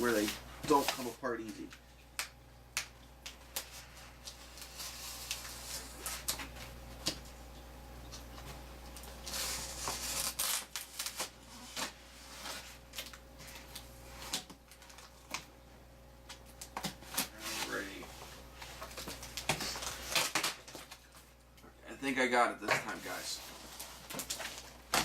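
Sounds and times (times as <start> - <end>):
packing material rustling: 9.0 - 15.3, 22.9 - 25.0
cardboard scraping and tearing: 9.2 - 12.8.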